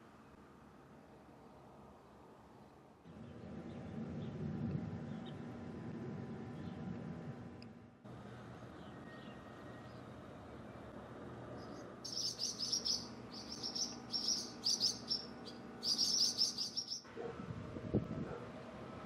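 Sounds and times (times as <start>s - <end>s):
faint low hum: 0.0s - 19.0s
swallows twittering: 11.6s - 17.0s.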